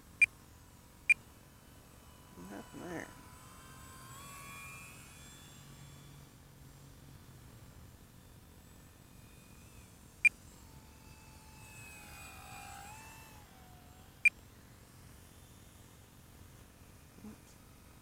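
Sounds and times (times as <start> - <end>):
faint tone rising and falling: 0.0 - 18.0.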